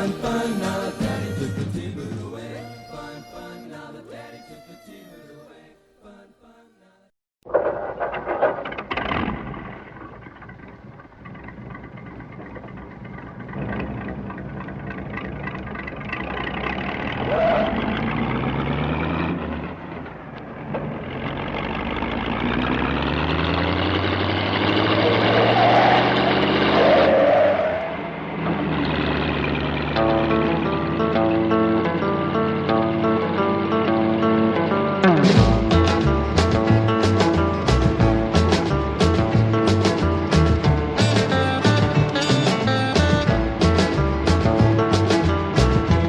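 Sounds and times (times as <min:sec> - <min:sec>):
car engine revving: 0:11.3 - 0:46.0.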